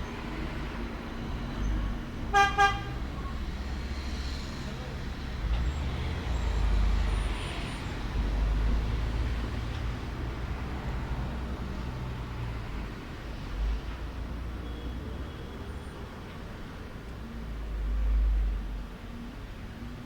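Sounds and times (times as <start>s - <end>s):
road traffic rumble: 0.0s - 20.0s
vehicle horn tooting: 2.3s - 3.0s.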